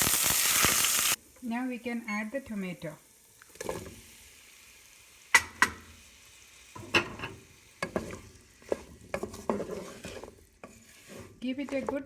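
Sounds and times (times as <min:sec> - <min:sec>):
faint sizzle: 0:00.0 - 0:12.0
spoon scraping against pan: 0:06.8 - 0:12.0.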